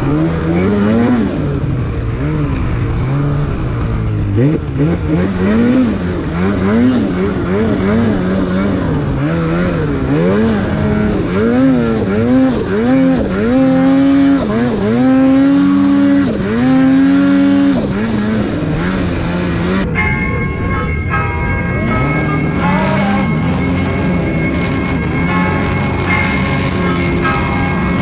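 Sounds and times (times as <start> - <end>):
snowmobile engine revving: 0.0 - 28.0.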